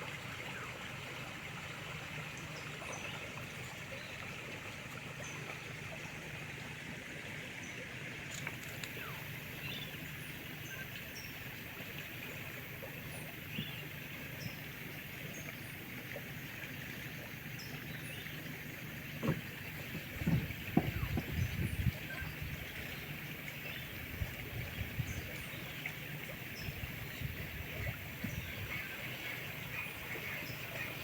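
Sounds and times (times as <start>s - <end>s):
low knocks and rustles: 19.1s - 21.9s.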